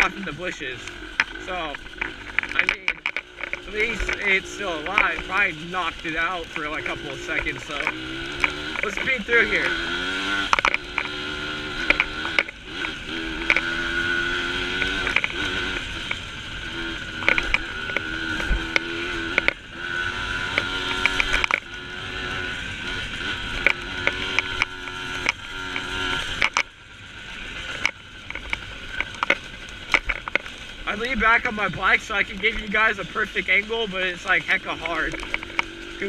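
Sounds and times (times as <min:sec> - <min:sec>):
dirt bike engine under throttle: 0:00.0 - 0:36.0
bike clicks and knocks: 0:01.2 - 0:05.5, 0:06.2 - 0:11.2, 0:11.8 - 0:16.2, 0:17.2 - 0:19.6, 0:20.5 - 0:21.8, 0:23.2 - 0:26.7, 0:27.7 - 0:31.5, 0:34.3 - 0:36.0.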